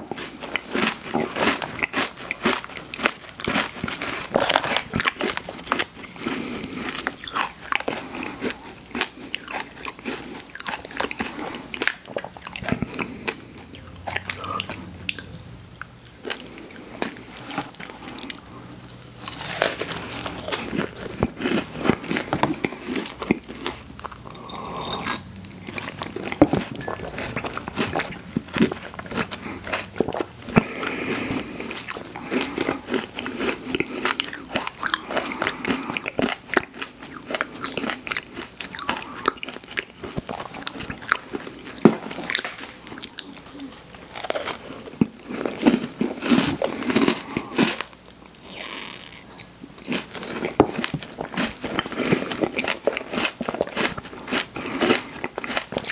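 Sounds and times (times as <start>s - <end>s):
crunchy snack chewing: 0.0s - 55.9s
wet mouth sounds: 10.5s - 36.1s.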